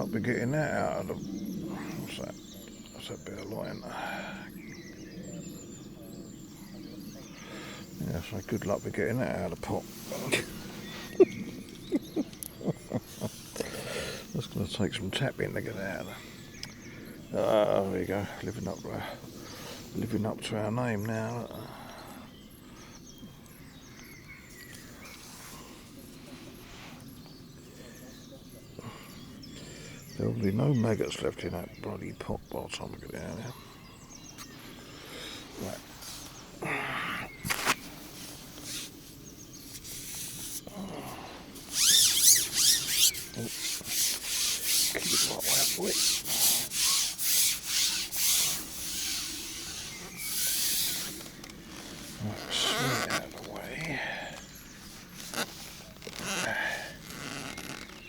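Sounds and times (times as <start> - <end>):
faint bird chirps: 0.0 - 58.0
fishing pole sections sliding: 37.5 - 39.0, 41.6 - 53.5.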